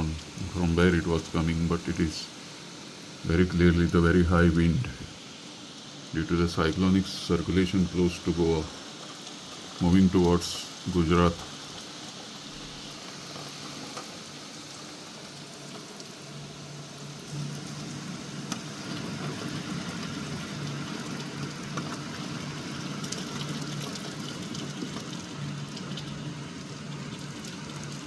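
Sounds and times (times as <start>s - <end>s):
low steady hum: 0.0s - 9.0s
heavy rain: 0.0s - 28.0s.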